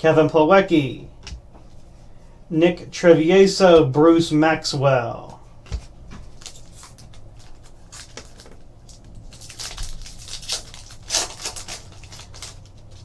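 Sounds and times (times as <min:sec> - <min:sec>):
cards rustling and sliding: 0:05.7 - 0:13.0.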